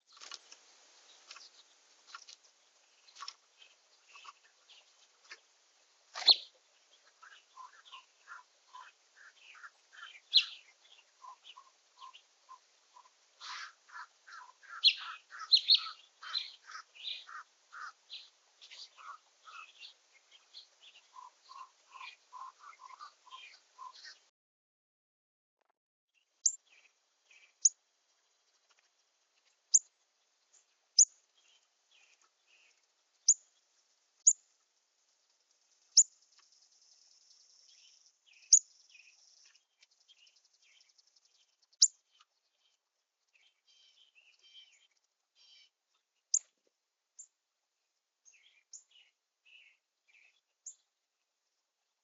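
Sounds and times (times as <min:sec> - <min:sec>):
soft bird twittering: 0:06.2 - 0:24.2, 0:35.7 - 0:46.5.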